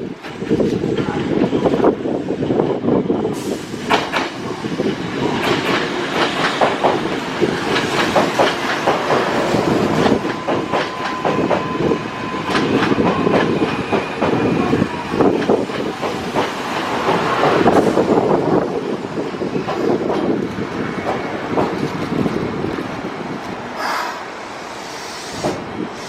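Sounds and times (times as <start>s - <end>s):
wheels clacking over rail joints: 3.9s - 11.8s, 15.1s - 18.3s.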